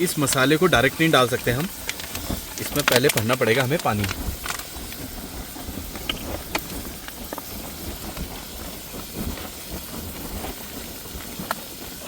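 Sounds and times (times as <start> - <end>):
onions frying in a pan: 0.0 - 12.0.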